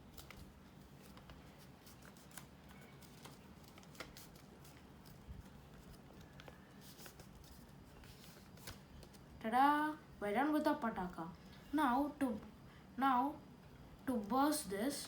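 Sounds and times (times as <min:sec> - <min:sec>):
paper rustling and crinkling: 0:00.0 - 0:09.4.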